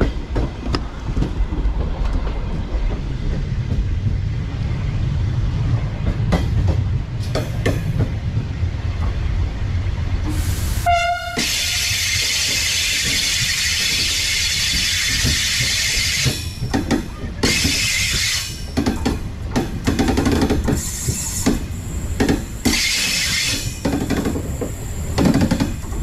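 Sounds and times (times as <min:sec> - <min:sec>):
train wheels clunking over joints: 0:00.0 - 0:09.5, 0:11.3 - 0:26.0
steady train hiss: 0:10.2 - 0:16.4, 0:20.0 - 0:26.0.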